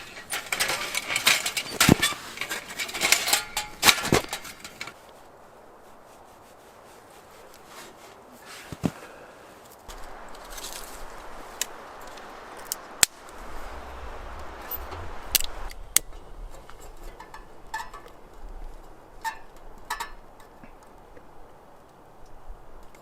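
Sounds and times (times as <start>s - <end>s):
light clinks and rattles: 0.0s - 5.0s
camping gear rustling: 0.0s - 23.0s.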